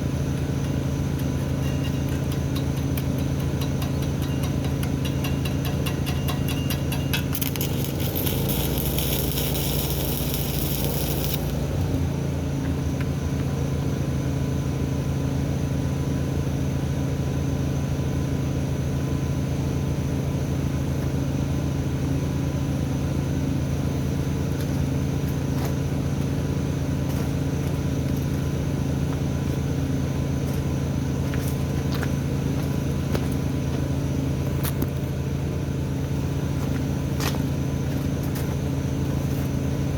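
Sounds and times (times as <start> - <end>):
steady low hum: 0.0 - 39.9
welding arc crackling and hissing: 6.8 - 12.0.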